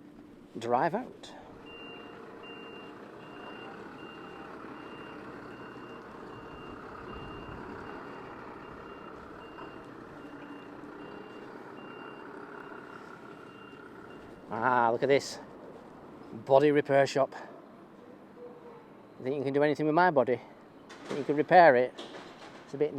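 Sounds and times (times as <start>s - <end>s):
diesel engine running: 0.0s - 16.1s
truck reversing alarm beeping: 1.6s - 14.8s.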